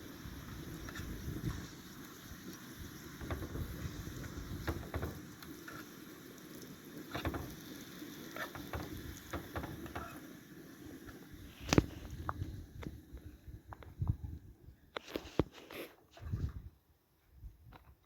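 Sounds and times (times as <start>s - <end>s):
food frying in a pan: 0.0s - 13.0s.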